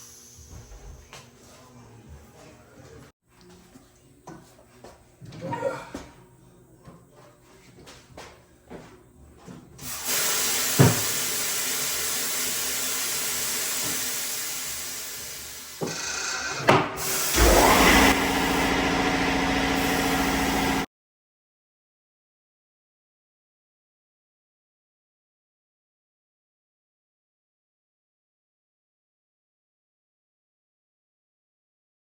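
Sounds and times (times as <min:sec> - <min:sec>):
machine humming: 0:17.2 - 0:20.9.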